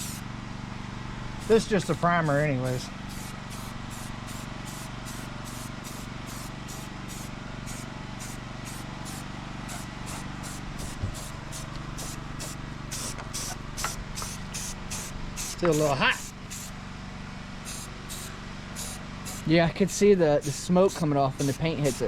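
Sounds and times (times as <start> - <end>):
spray can hissing: 0.0 - 0.2, 3.0 - 16.7, 17.7 - 19.5, 20.4 - 22.0.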